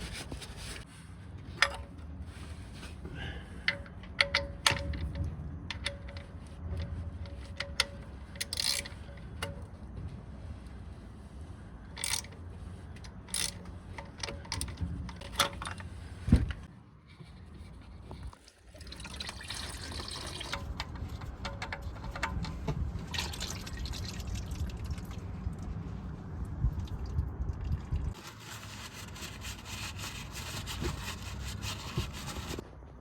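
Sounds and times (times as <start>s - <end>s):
oil pouring in a stream: 18.4s - 20.8s, 23.0s - 25.9s.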